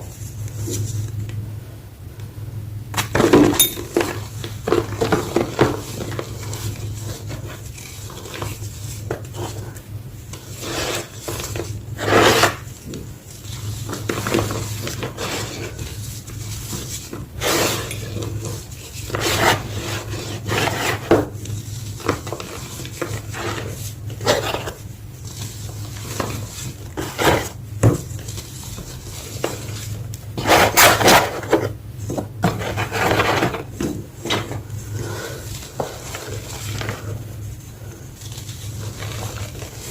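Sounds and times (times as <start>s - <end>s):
chalk crunching and scraping: 4.7s - 27.6s, 32.4s - 39.9s.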